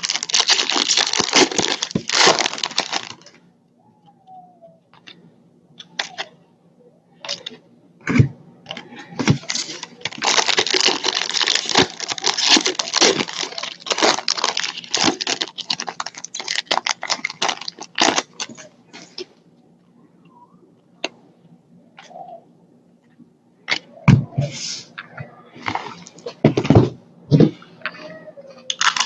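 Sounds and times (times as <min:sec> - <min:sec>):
packaging being torn and crinkled: 0:00.0 - 0:03.4, 0:09.2 - 0:18.7, 0:28.7 - 0:29.0
packaging clicks: 0:00.0 - 0:03.4, 0:08.7 - 0:18.6, 0:28.7 - 0:29.0.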